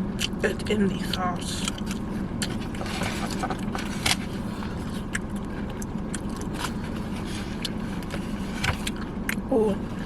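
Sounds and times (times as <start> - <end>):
car cabin hum: 0.0 - 10.0
food packaging rustling: 1.6 - 5.7.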